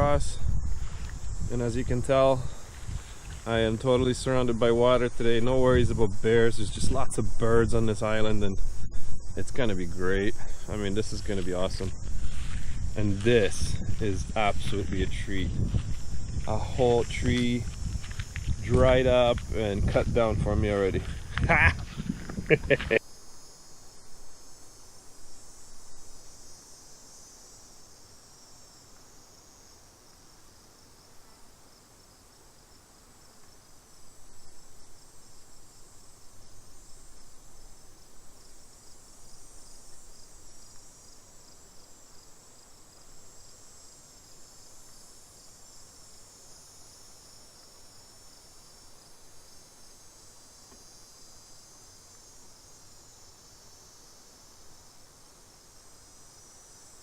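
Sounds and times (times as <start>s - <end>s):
low noise: 0.0s - 26.4s
insects trilling: 0.0s - 57.0s.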